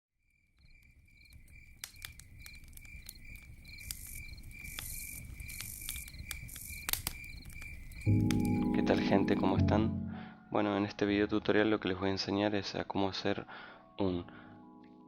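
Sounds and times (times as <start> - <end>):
crickets chirping: 0.2 - 8.7
campfire crackling: 0.3 - 9.6.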